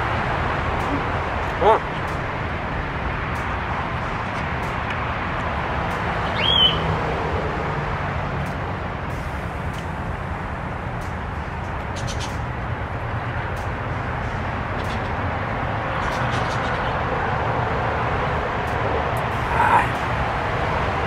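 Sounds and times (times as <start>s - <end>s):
bird chirp: 6.3s - 6.8s.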